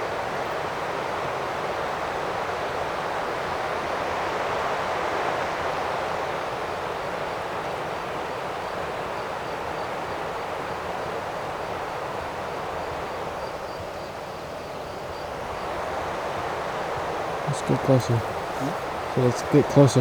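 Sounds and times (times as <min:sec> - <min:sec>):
river water rushing: 0:15.4 - 0:20.0.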